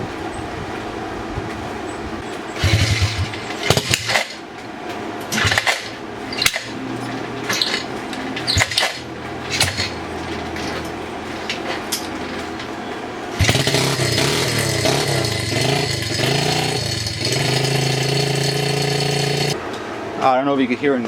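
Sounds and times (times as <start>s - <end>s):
mechanical noise under engine cover: 2.3s - 19.6s
pit bike engine kickstarting: 2.5s - 4.4s, 5.3s - 12.7s, 13.3s - 19.6s.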